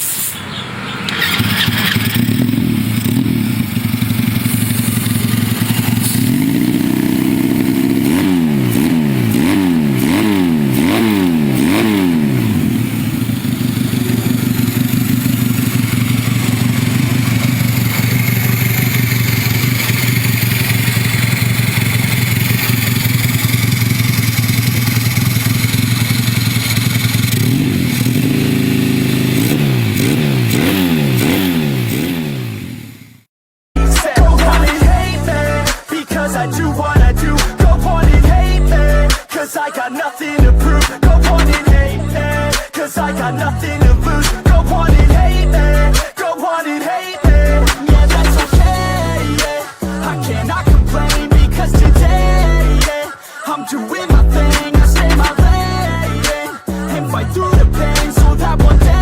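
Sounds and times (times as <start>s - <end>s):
engine throttle blips: 0.0s - 33.2s
mini bike engine idling: 0.4s - 33.0s, 40.4s - 46.1s, 47.3s - 53.1s, 54.1s - 59.0s.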